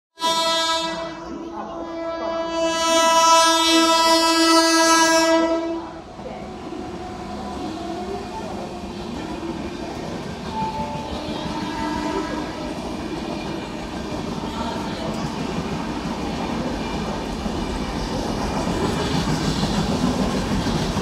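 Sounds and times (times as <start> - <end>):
locomotive horn blast: 0.2 - 8.1, 10.5 - 12.8
train clickety-clack rumble: 2.0 - 21.0.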